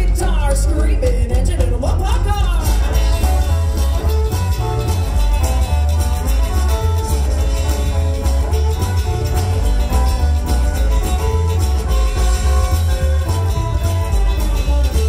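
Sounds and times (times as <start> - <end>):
electric guitar: 0.0 - 15.0
pulsing bass line: 0.0 - 15.0
rockabilly band playing: 0.0 - 15.0.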